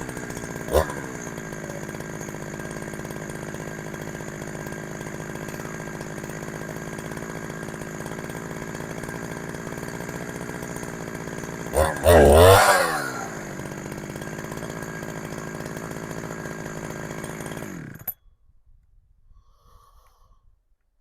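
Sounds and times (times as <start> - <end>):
chainsaw idling: 0.0 - 18.2.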